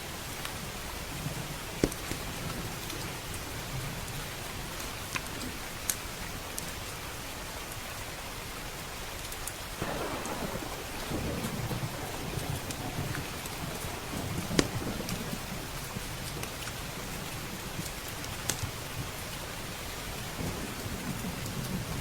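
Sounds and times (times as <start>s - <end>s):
steady rain: 0.0s - 22.0s
wood fire crackling: 9.4s - 22.0s
thunder rumbling: 9.8s - 22.0s.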